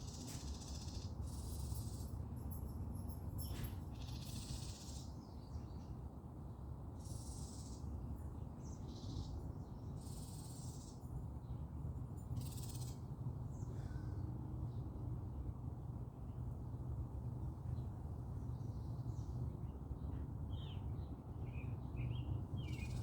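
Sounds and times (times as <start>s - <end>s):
birds calling: 21.5s - 23.0s.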